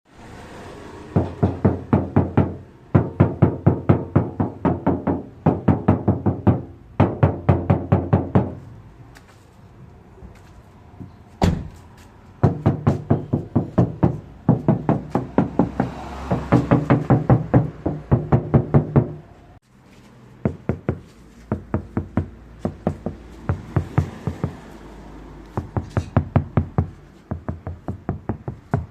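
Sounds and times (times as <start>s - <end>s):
knuckles rapping on car panel: 25.6s - 28.9s.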